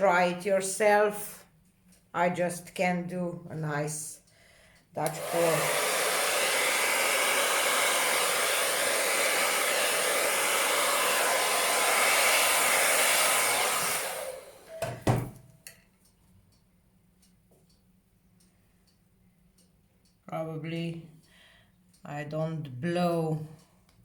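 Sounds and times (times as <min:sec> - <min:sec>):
hair dryer blowing: 0:05.0 - 0:15.4.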